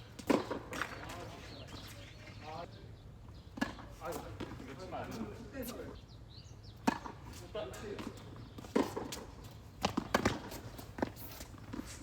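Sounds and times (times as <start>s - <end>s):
tennis ball bouncing on court: 9.8s - 11.2s.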